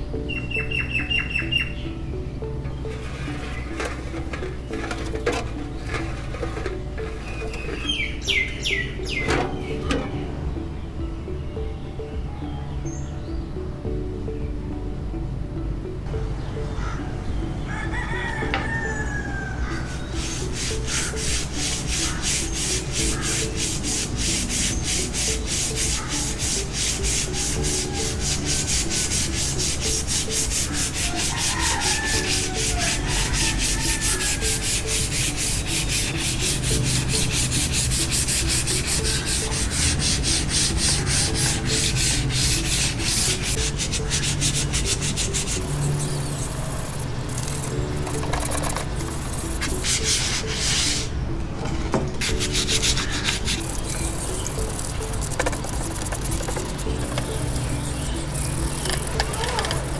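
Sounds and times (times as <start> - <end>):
sanding metal blade by hand: 2.9 - 10.1, 19.8 - 51.1, 52.2 - 59.9
rooster crowing: 17.7 - 20.0, 31.0 - 34.6.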